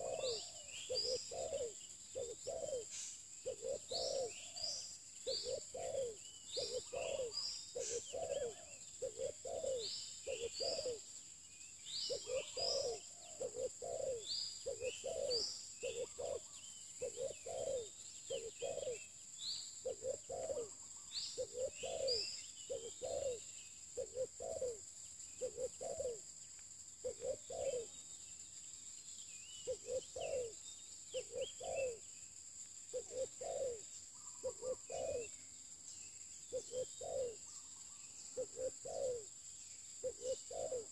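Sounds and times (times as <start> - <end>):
dove cooing: 0.0 - 11.1, 12.1 - 19.1, 19.8 - 24.8, 25.4 - 26.2, 27.0 - 27.9, 29.6 - 32.0, 32.9 - 35.4, 36.5 - 37.7, 38.3 - 39.3, 40.0 - 40.9
small birds chirping: 0.0 - 40.9.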